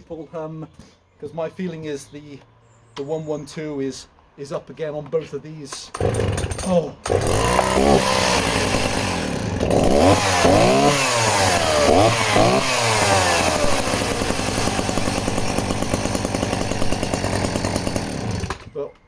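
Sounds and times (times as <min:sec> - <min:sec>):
chainsaw engine revving: 0:05.7 - 0:18.8.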